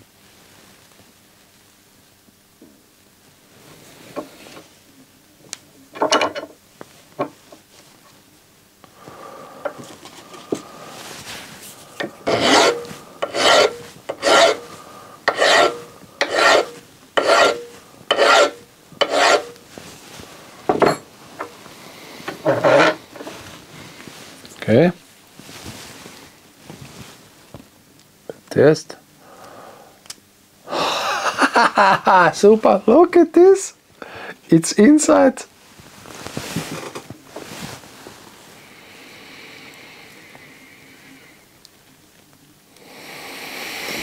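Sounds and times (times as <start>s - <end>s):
hand file rasping: 12.0s - 19.6s, 22.4s - 23.3s.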